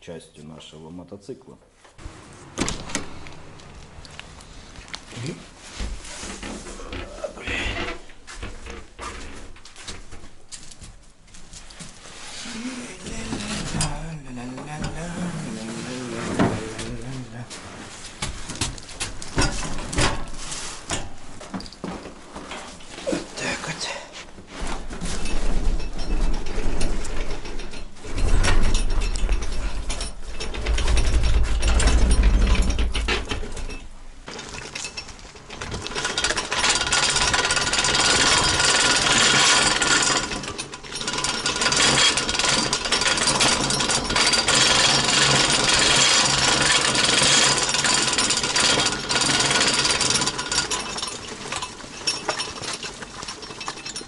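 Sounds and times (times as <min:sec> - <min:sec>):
loud grinding noise: 0:12.4 - 0:17.1, 0:35.7 - 0:52.9.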